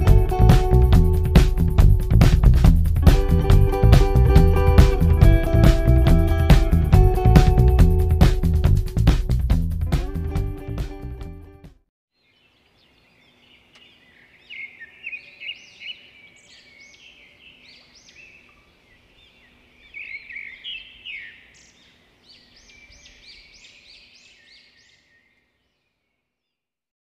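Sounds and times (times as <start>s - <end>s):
small birds chirping and twittering: 12.1s - 26.6s.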